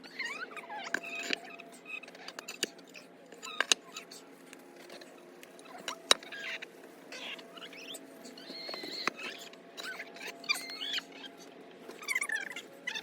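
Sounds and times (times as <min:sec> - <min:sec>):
bird chirps and squeaky calls: 0:04.9 - 0:13.0.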